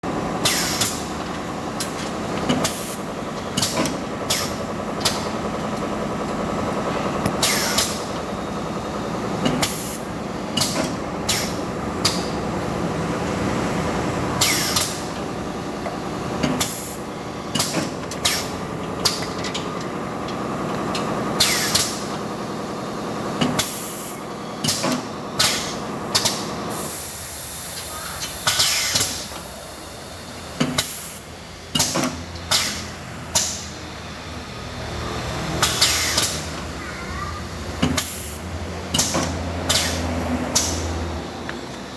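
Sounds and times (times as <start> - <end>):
compressed air hisses: 7.4 - 8.0, 26.7 - 31.2.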